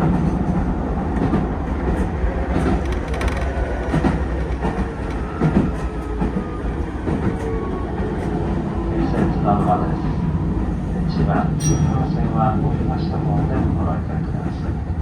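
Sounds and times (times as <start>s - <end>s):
electric train rumbling: 0.0s - 15.0s
wheels clicking over rail joints: 1.2s - 8.4s.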